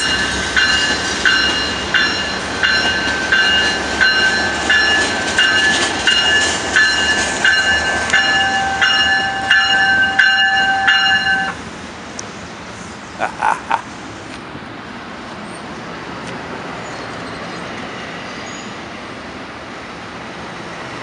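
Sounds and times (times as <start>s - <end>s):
bell ringing: 0.0s - 11.6s
steady high tone: 0.0s - 11.6s
freight train wheels rumbling: 0.0s - 21.0s.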